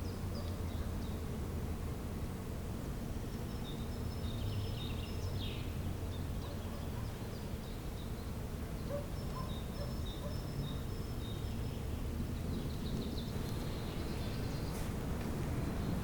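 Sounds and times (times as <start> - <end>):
songbirds chirping and whistling: 3.4 - 16.0
low background rumble: 11.0 - 16.0.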